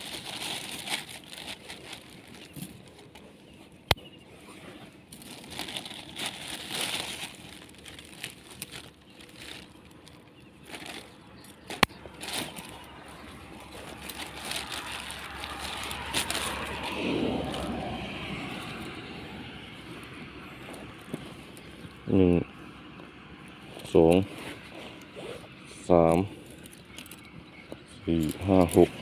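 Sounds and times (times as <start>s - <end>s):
rustling and crackling of traps: 0.0s - 3.9s, 4.8s - 19.0s, 26.1s - 29.0s.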